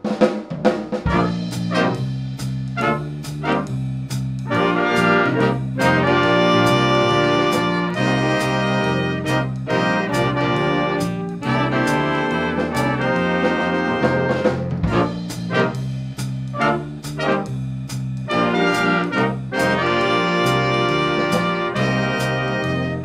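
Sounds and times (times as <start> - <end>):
drum and cymbal hits: 0.0 - 23.0
brass band playing: 0.1 - 23.0.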